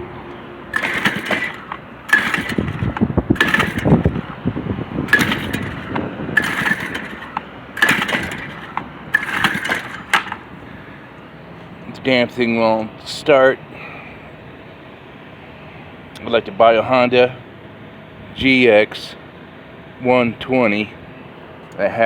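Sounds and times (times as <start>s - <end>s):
recoil starter rope whirring: 0.7s - 11.1s.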